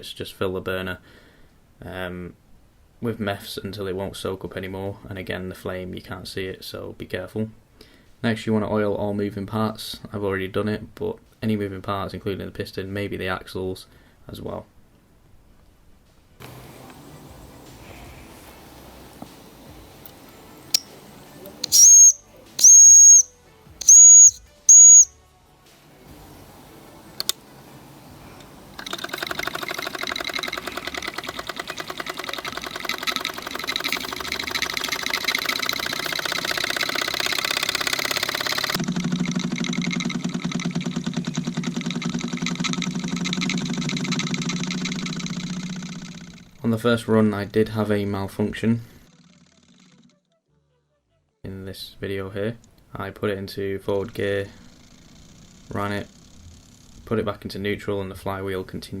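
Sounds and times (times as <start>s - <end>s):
steam hissing: 16.4s - 23.2s
toy steam engine chuffing: 16.4s - 25.1s, 28.0s - 46.4s
sharp click: 21.6s - 25.1s
toy steam engine whistle: 21.6s - 25.1s, 32.6s - 38.8s.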